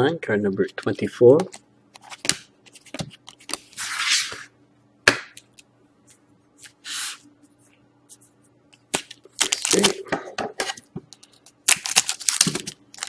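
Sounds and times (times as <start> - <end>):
card packs clicking and snapping: 8.9 - 10.0, 10.6 - 13.0
cards rustling: 9.0 - 10.0, 10.6 - 13.0.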